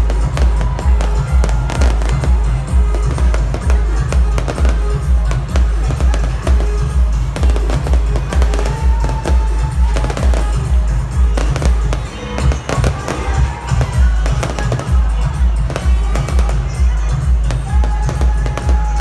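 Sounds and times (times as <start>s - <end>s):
fireworks crackling and bursting: 0.0s - 19.0s
party music with heavy bass: 0.0s - 19.0s.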